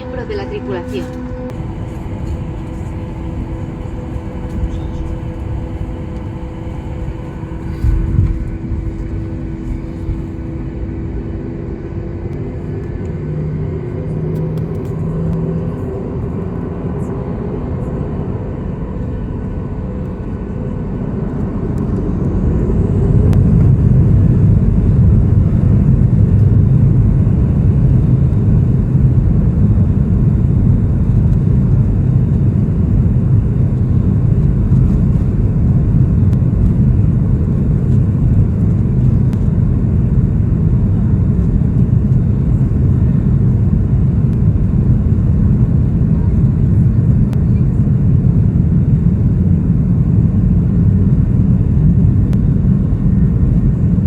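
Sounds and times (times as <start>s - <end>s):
jet engines spooling up: 0.0s - 16.4s.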